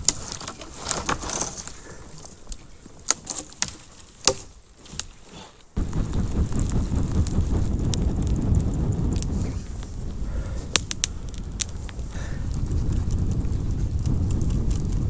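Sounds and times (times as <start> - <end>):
campfire crackling and popping: 5.7 - 15.0
deep rushing noise: 5.8 - 15.0.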